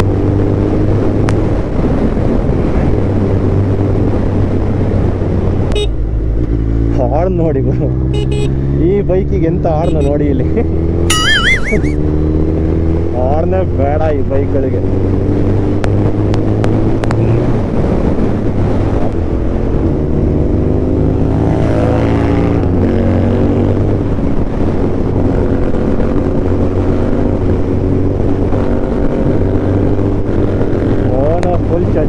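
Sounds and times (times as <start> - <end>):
wind on microphone: 0.0 - 7.0, 14.7 - 32.0
motorcycle engine revving: 0.0 - 32.0.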